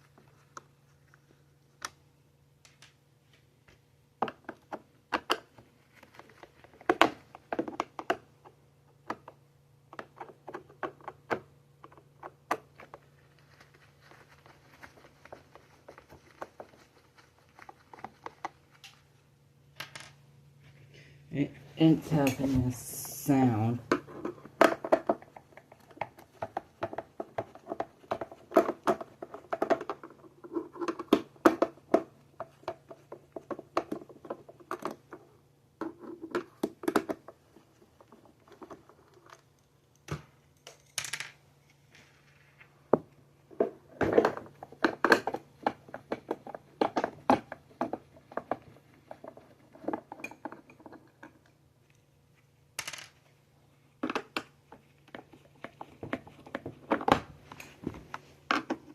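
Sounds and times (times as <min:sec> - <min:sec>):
plastic parts clicking and clattering: 0:23.9 - 0:41.4, 0:43.5 - 0:52.0.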